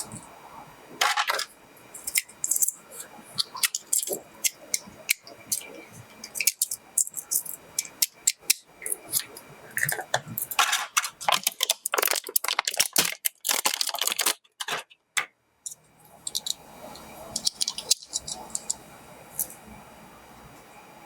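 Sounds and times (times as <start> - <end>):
low steady hum: 0.0 - 12.9, 15.5 - 21.0
packaging crinkling and rattling: 1.0 - 15.0, 16.2 - 16.6, 17.3 - 18.8
scattered clicks: 15.7 - 18.8.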